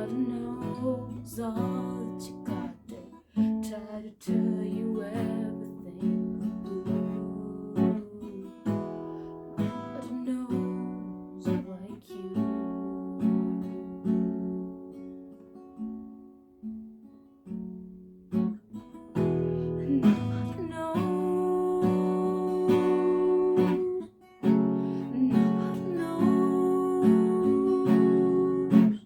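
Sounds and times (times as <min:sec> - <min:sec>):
acoustic guitar strumming chords: 0:17.6 - 0:29.0.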